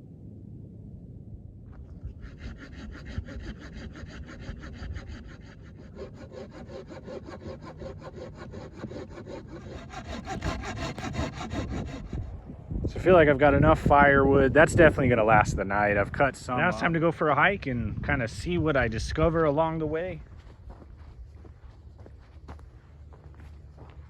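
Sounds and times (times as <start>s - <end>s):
hand saw cutting wood: 2.0s - 12.4s.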